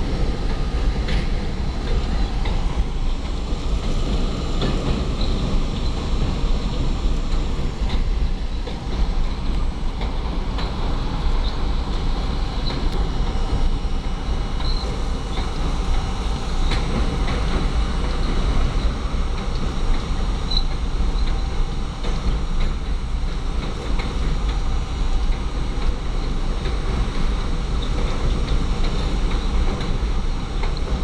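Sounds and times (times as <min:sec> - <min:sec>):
clicks of subway car: 0:00.0 - 0:31.0
rumble of wheels on rail: 0:00.0 - 0:31.0
high wheel squeals: 0:20.4 - 0:21.3.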